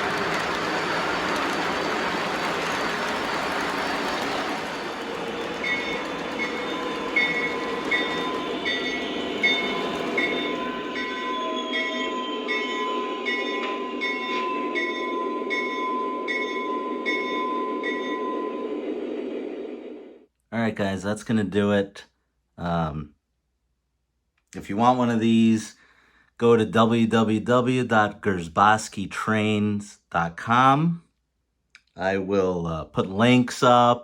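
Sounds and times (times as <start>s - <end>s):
model diesel engine sound: 0.0s - 11.0s.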